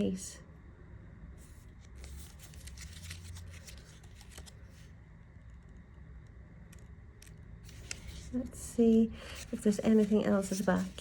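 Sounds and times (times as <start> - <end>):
paper pages turning: 1.4 - 5.0, 6.6 - 8.6, 9.2 - 11.0.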